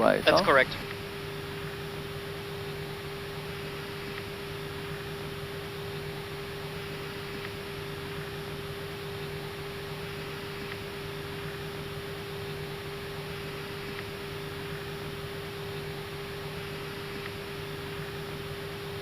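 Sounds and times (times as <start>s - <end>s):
air conditioning and fans hissing: 0.0s - 19.0s
steady hum: 0.0s - 19.0s.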